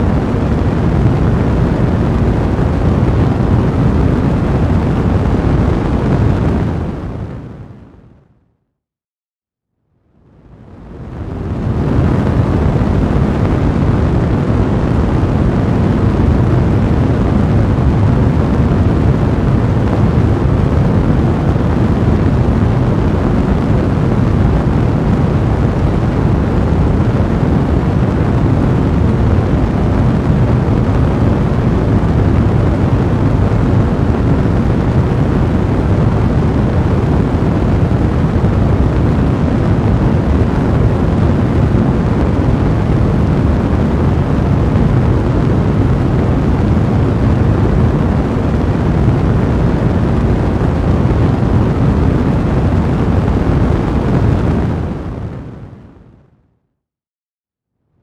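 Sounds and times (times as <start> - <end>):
fire blazing in a fireplace: 0.1 - 7.9, 10.2 - 55.8.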